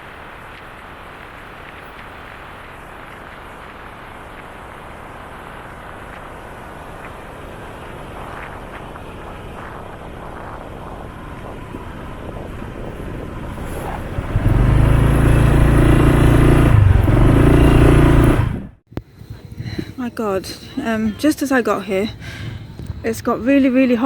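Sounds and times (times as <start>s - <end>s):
wind and road noise: 0.0s - 24.0s
motorcycle engine: 2.7s - 18.8s.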